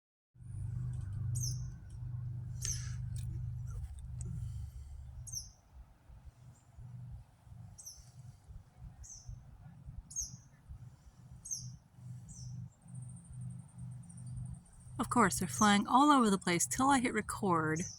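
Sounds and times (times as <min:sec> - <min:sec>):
low rumble: 0:00.4 - 0:05.5.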